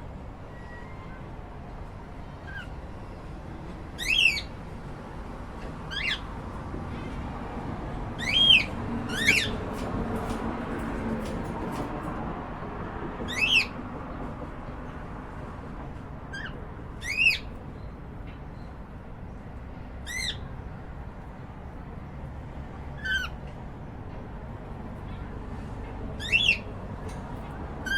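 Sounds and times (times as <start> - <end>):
cockatiel shrill calls: 4.0 - 4.5, 5.9 - 6.2, 16.3 - 17.5, 20.1 - 20.4, 26.2 - 26.6.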